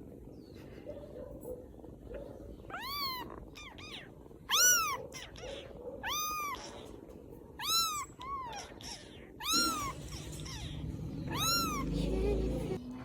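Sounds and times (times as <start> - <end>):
kittens mewing: 2.6 - 12.8.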